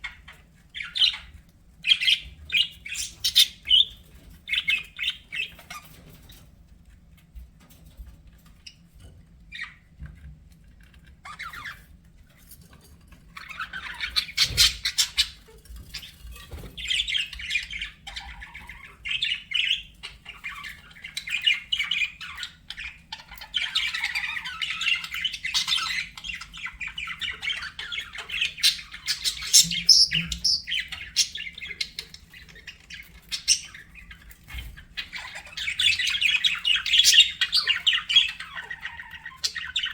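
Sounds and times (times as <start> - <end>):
budgerigars chattering: 0.0 - 6.0, 16.8 - 39.9.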